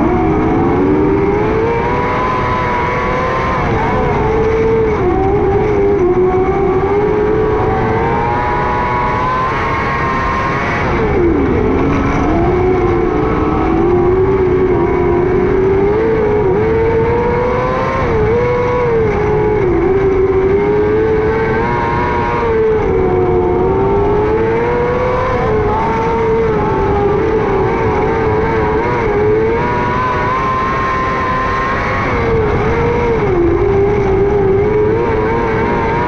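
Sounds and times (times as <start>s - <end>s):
race car engine revving: 0.0s - 36.0s.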